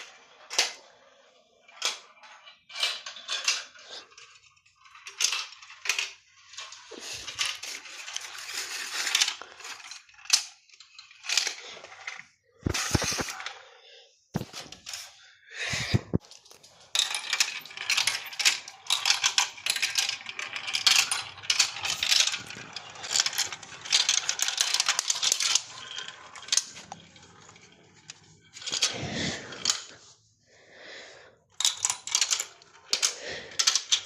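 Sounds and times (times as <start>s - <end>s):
marbles clattering down track: 15.8s - 30.0s, 31.6s - 34.0s.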